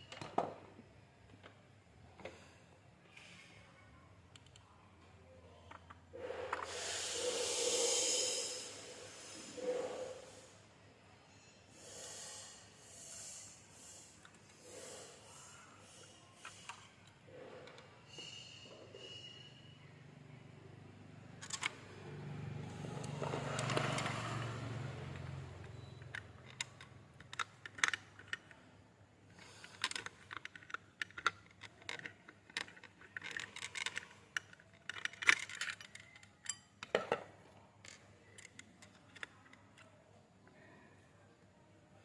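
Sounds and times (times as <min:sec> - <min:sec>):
small metal parts clinking: 0:23.2 - 0:28.5, 0:29.4 - 0:37.2.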